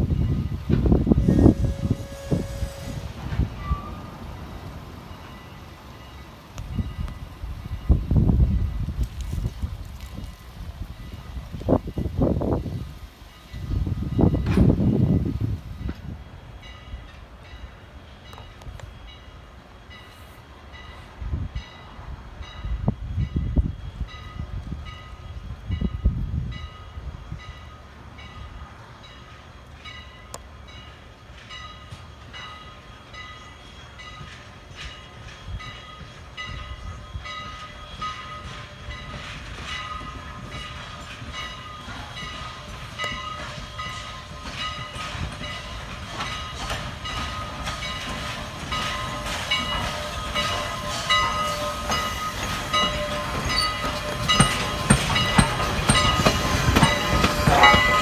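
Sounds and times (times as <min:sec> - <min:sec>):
wind rumble on microphone: 0:00.0 - 0:04.0, 0:06.6 - 0:16.5, 0:21.2 - 0:27.6
steam locomotive and train: 0:00.0 - 0:58.0.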